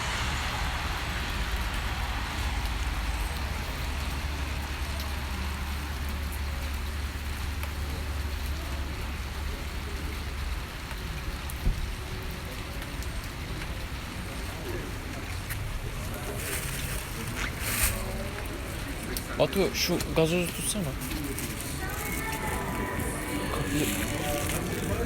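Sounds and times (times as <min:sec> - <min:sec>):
low rumble: 0:00.0 - 0:04.9
steady rain hiss: 0:00.0 - 0:25.0.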